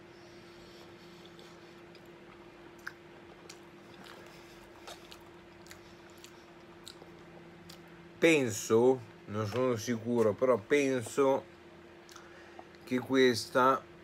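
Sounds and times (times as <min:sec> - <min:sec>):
faint steady hum: 0:00.0 - 0:14.0
man chewing: 0:00.1 - 0:08.1, 0:12.0 - 0:12.8.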